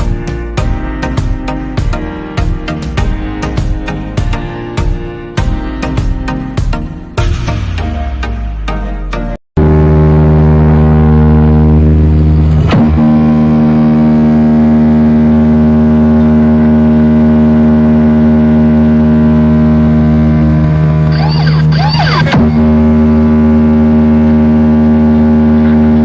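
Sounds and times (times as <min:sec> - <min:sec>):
electronic drone of held tones: 0:09.6 - 0:26.0.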